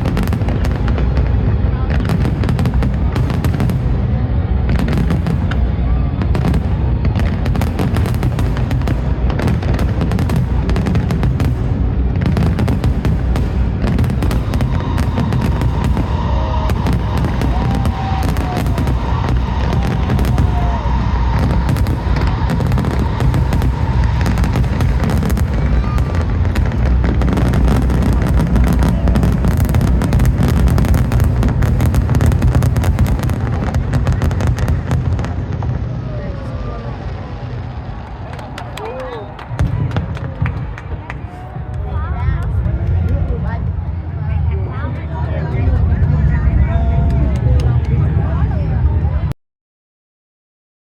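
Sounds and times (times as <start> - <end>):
deep rumble: 0.0 - 38.6, 39.2 - 49.4
fireworks bangs and crackling: 0.0 - 49.3
firework whistles: 13.8 - 35.8.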